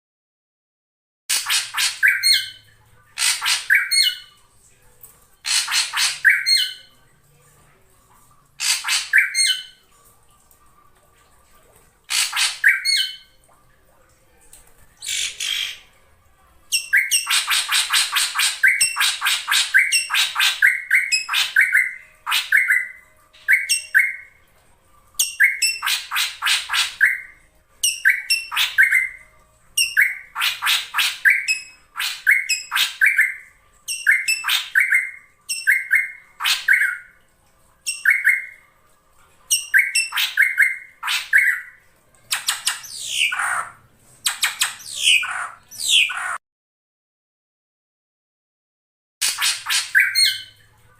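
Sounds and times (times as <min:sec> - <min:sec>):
bird harsh rattling calls: 0:01.3 - 0:02.6, 0:03.2 - 0:04.2, 0:05.4 - 0:06.8, 0:08.6 - 0:09.7, 0:12.1 - 0:13.2.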